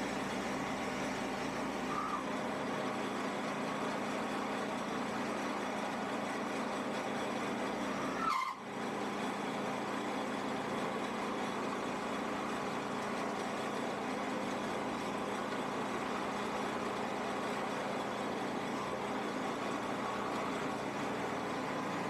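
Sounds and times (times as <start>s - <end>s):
motor humming: 0.0s - 22.0s
rising squeal: 8.0s - 8.6s.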